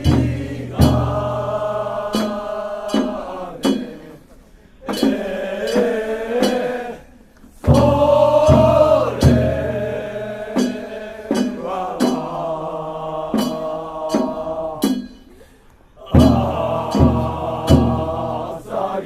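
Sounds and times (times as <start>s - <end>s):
sharp knock marking beat: 0.0s - 4.1s, 7.7s - 15.3s, 16.2s - 18.6s
men chanting boat song: 0.0s - 15.2s, 16.0s - 19.0s.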